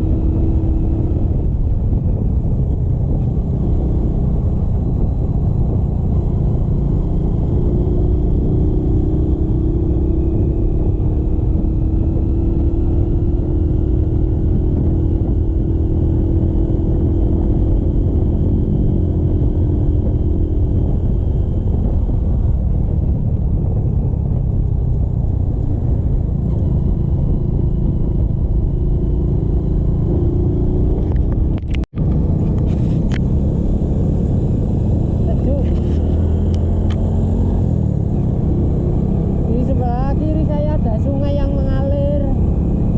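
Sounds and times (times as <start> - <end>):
motorcycle engine rumble: 0.0 - 42.9
road and wind noise: 0.0 - 42.9.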